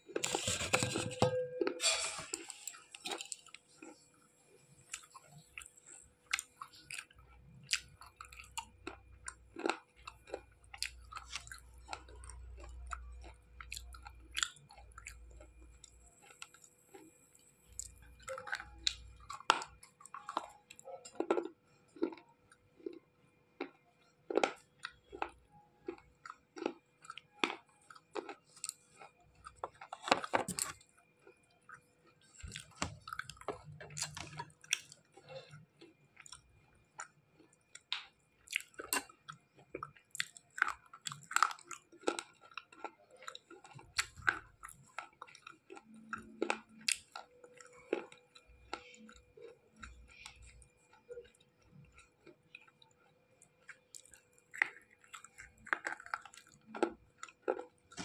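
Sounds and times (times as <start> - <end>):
chewing: 2.2 - 58.0.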